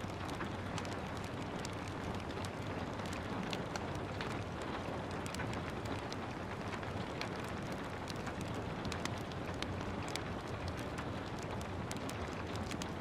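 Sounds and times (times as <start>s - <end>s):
gentle rain: 0.0s - 13.0s
wood fire crackling: 0.0s - 13.0s.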